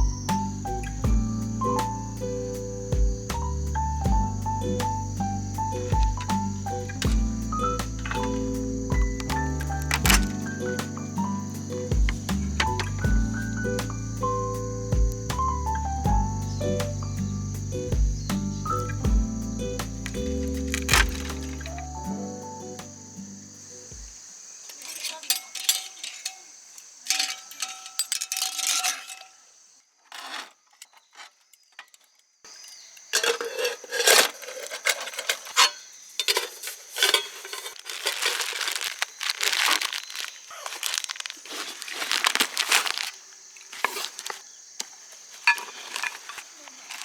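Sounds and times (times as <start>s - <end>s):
plastic rustling and crinkling: 5.0s - 13.1s, 19.9s - 21.9s, 33.1s - 47.0s
light clicks and clinks: 24.7s - 29.4s.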